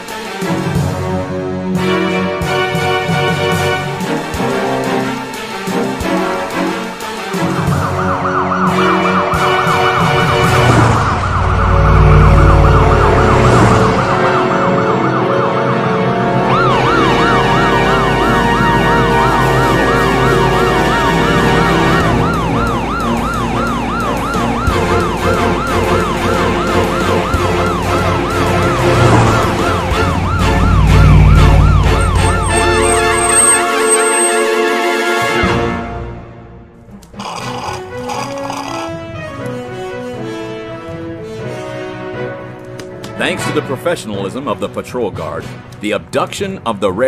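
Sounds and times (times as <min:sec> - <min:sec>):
police siren yelping: 0:07.4 - 0:34.5.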